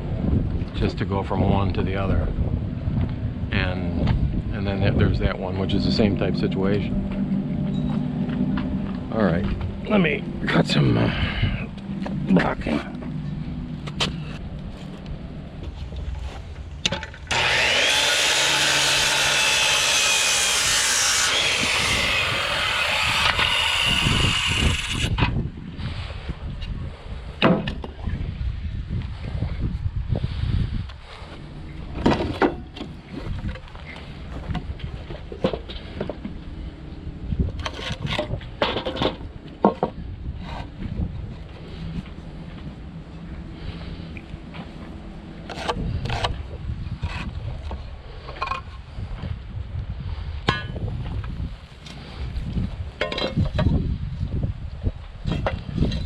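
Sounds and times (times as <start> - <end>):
wind on microphone: 0.0 - 18.3, 20.4 - 56.0
power saw cutting wood: 17.2 - 25.2
wooden knocks and scraping: 37.5 - 40.8.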